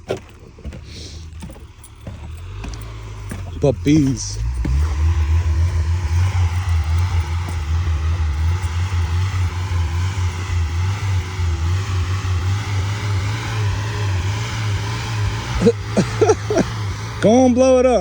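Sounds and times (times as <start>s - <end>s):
pickup engine rumbling: 0.0s - 18.0s.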